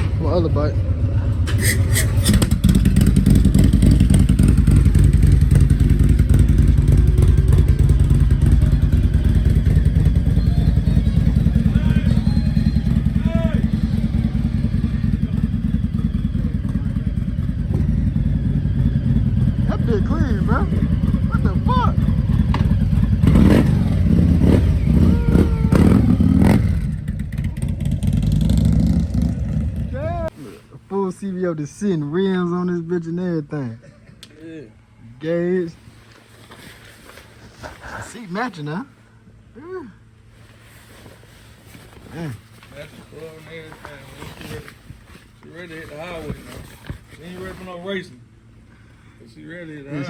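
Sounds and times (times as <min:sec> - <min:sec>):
motorcycle engine idling: 0:00.0 - 0:30.3.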